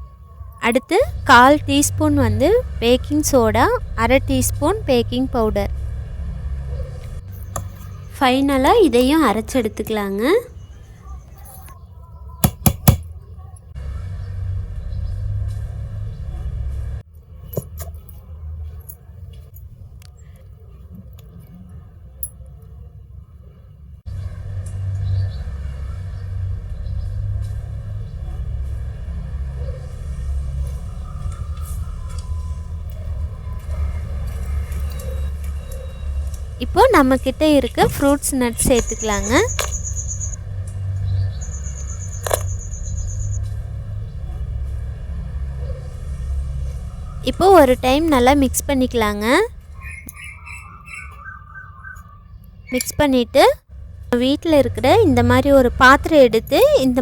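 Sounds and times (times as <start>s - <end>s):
low hum: 0.0s - 11.1s
high insect-like trill: 38.7s - 40.4s.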